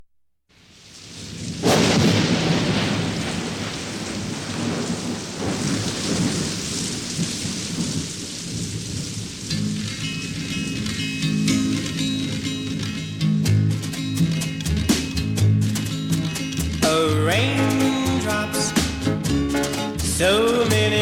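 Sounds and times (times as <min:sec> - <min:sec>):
steady rain: 0:00.5 - 0:15.1
thunderclap: 0:00.9 - 0:21.0
guitar notes: 0:09.5 - 0:21.0.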